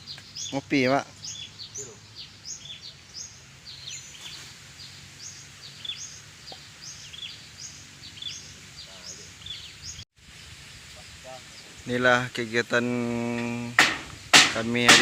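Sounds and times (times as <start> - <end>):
bird chirping: 0.0 - 11.8.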